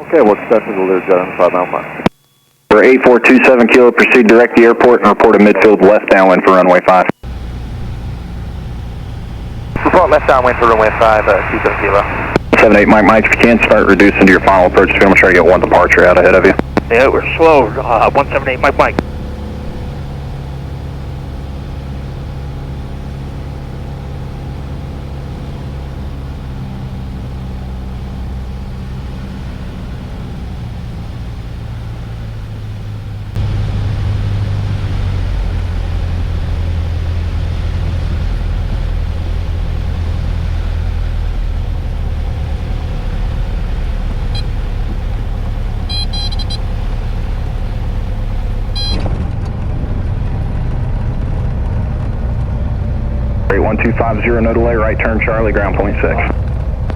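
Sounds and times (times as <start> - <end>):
airplane engine and propeller: 0.0 - 56.9
high beeps: 45.9 - 46.6, 48.8 - 49.0.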